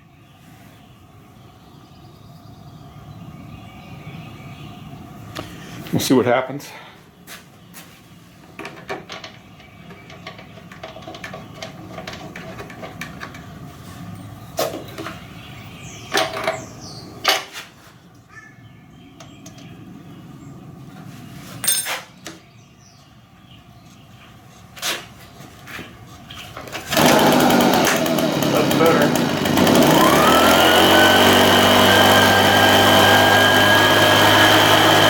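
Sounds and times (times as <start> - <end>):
tools clicking and rattling: 8.6 - 15.2.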